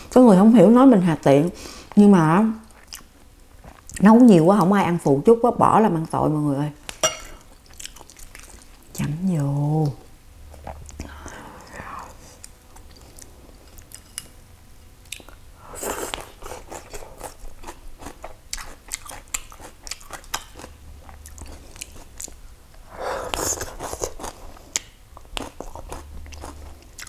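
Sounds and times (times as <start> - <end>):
chewing and crunching vegetables: 2.6 - 4.1, 7.4 - 9.5, 10.5 - 14.4, 15.0 - 22.4, 23.3 - 27.0.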